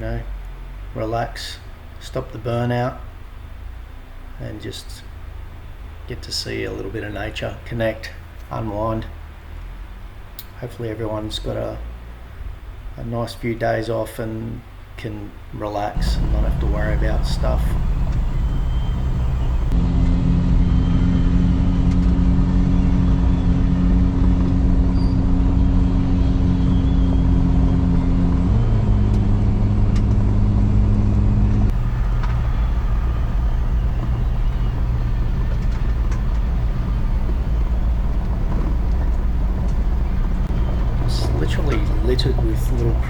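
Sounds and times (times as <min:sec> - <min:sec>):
road rumble: 0:00.0 - 0:43.0
car engine running: 0:16.0 - 0:43.0.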